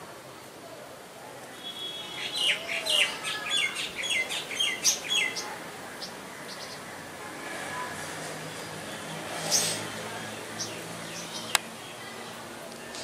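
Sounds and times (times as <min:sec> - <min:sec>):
faint background hiss: 0:00.0 - 0:13.0.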